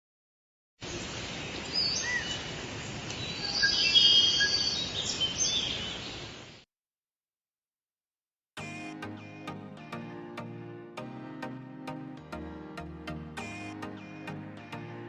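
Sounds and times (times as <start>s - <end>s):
birds chirping: 0.8s - 6.6s.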